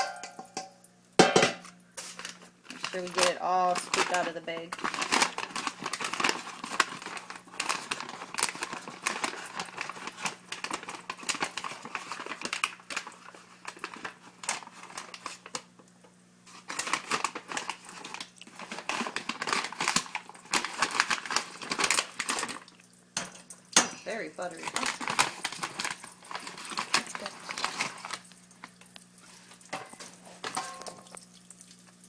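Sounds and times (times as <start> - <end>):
paper bag crinkling: 2.0 - 15.8, 16.4 - 22.9, 24.0 - 31.4.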